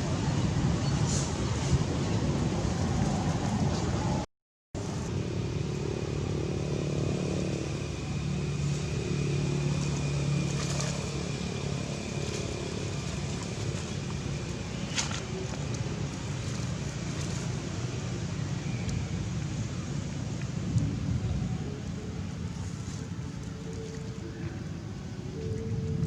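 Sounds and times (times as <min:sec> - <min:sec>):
motor vehicle engine running: 0:04.8 - 0:25.0.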